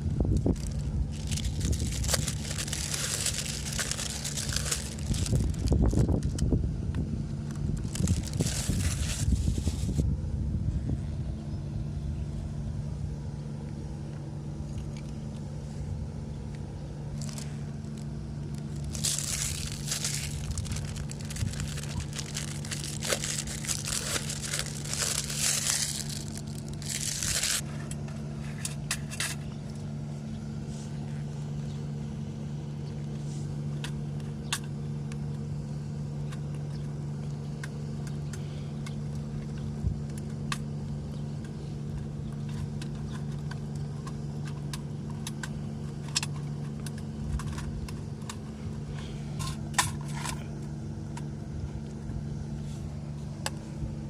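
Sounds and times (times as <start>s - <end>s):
low engine-like hum: 0.0s - 54.0s
packaging crinkling and rustling: 0.3s - 6.4s, 7.5s - 10.0s, 17.2s - 27.6s.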